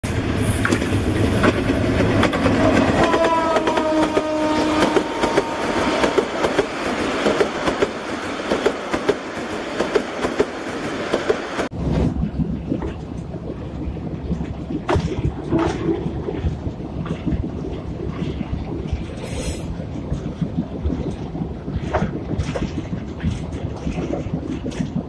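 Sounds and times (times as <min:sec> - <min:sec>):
diesel train passing: 0:00.0 - 0:12.0
wheels clacking over rail joints: 0:00.6 - 0:11.7
train horn blast: 0:02.6 - 0:06.2.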